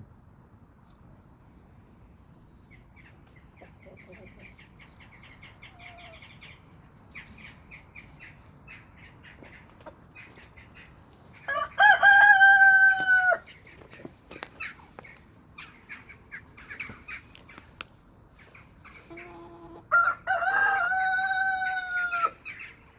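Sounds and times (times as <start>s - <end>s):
hens clucking softly: 2.7s - 11.5s, 18.4s - 22.9s
rooster crowing: 11.5s - 13.4s, 19.6s - 22.4s.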